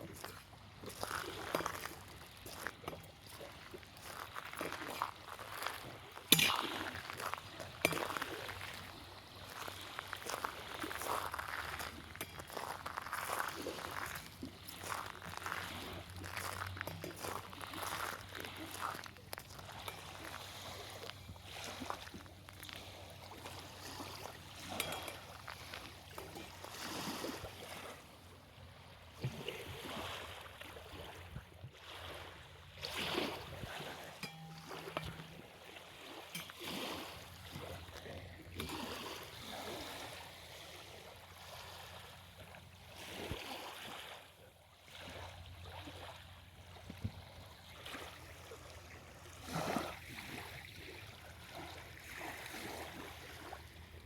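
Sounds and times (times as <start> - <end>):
waves lapping at shoreline: 0.0 - 54.0.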